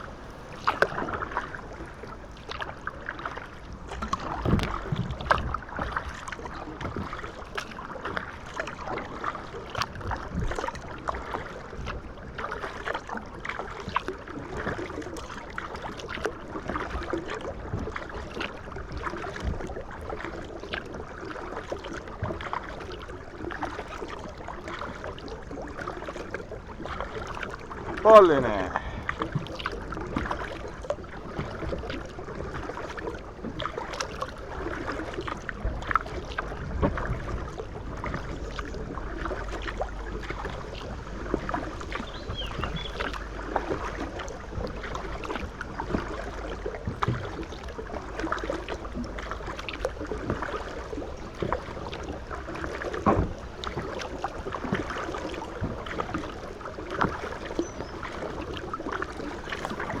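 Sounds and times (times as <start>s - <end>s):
paddle splashing water: 0.0s - 60.0s
light knocks against hull: 3.9s - 6.0s, 41.3s - 50.7s, 52.7s - 54.0s.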